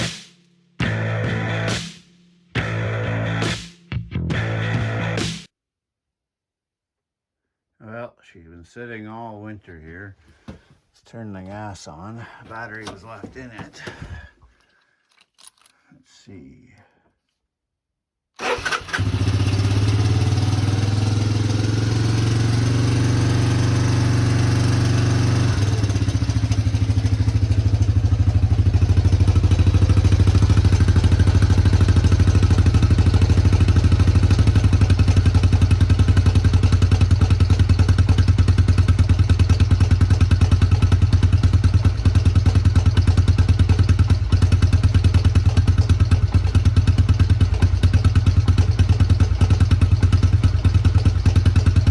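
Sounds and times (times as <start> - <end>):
engine starting and idling: 12.4 - 14.4, 18.4 - 51.9.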